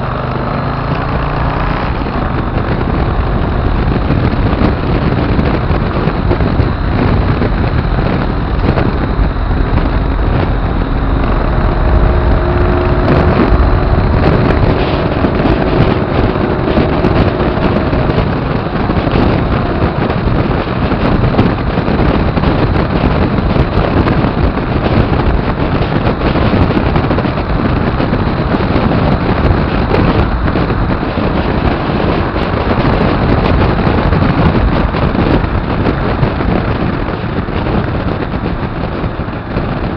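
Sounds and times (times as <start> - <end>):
motorcycle engine: 0.0 - 39.9
road noise: 0.0 - 39.9
wind rush over microphone: 0.0 - 39.9.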